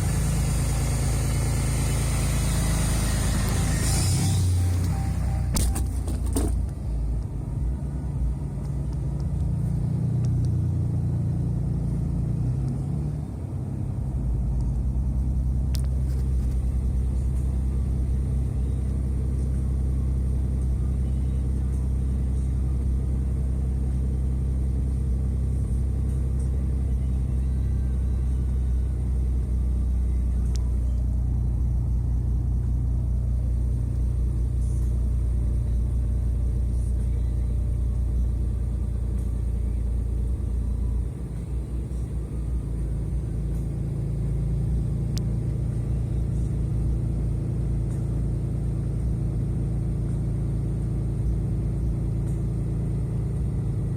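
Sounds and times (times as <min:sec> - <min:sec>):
diesel engine high idle drone: 0:00.0 - 0:53.9.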